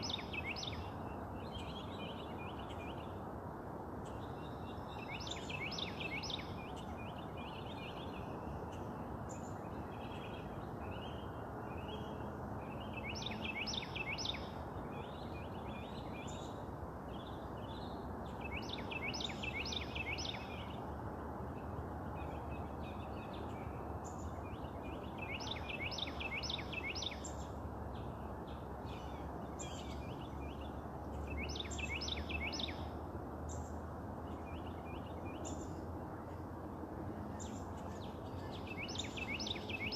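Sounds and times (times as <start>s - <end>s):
birds chirping softly: 0.0s - 39.9s.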